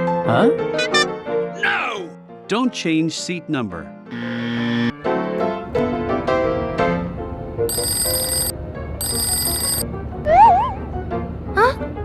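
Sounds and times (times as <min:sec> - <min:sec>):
light cartoon background music: 0:00.0 - 0:04.1
mobile phone ringtone: 0:07.7 - 0:09.8.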